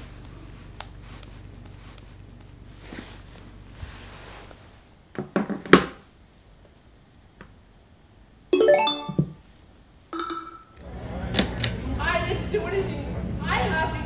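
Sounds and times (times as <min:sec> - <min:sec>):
sharp clicks: 0:10.2 - 0:13.0.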